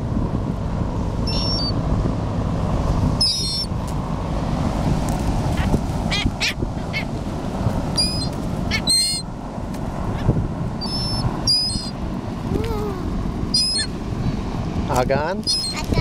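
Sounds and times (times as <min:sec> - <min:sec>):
wind: 0:00.0 - 0:16.0
gulls squawking: 0:01.3 - 0:01.8, 0:03.2 - 0:03.7, 0:05.6 - 0:07.2, 0:08.0 - 0:09.3, 0:10.2 - 0:12.0, 0:13.5 - 0:14.0, 0:15.4 - 0:16.0.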